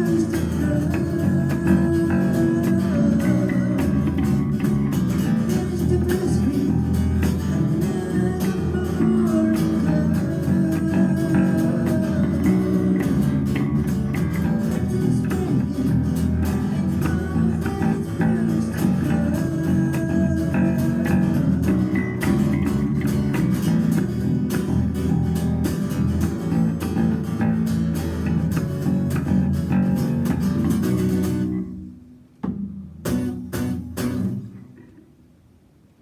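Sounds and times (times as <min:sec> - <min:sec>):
band playing guitars and bass: 0:00.0 - 0:31.9, 0:33.0 - 0:34.7.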